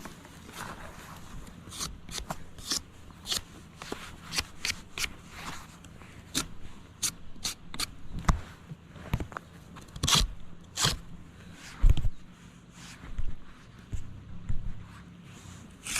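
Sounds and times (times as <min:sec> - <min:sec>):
knife scraping bark off stick: 0:01.7 - 0:05.6, 0:06.3 - 0:08.0, 0:10.0 - 0:11.1.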